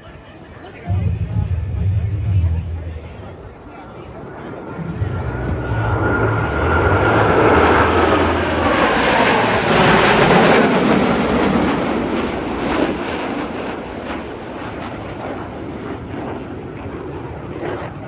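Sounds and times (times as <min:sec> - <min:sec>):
jet engine roar: 0:00.7 - 0:18.0
high whine sliding down: 0:04.5 - 0:10.3.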